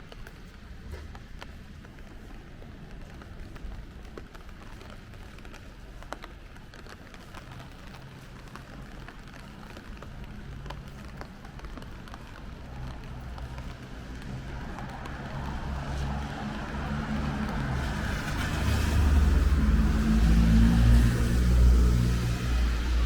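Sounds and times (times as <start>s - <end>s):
low traffic rumble: 0.0s - 23.0s
rain on street: 0.0s - 23.0s
vehicle approaching: 12.3s - 23.0s.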